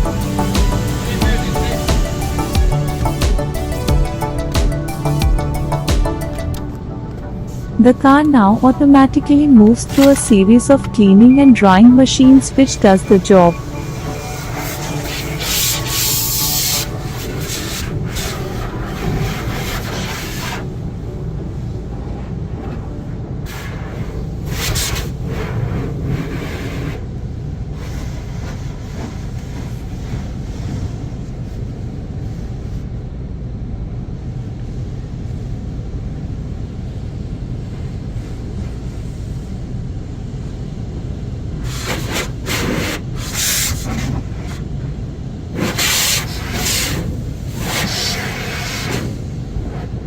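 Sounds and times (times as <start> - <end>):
car wash machinery rumble: 12.1 - 32.7, 36.5 - 50.0.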